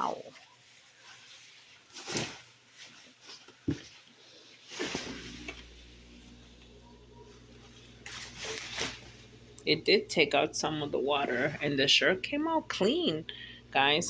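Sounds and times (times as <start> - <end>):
wet shirt rustling: 0.0 - 9.4
faint low hum: 4.8 - 14.0.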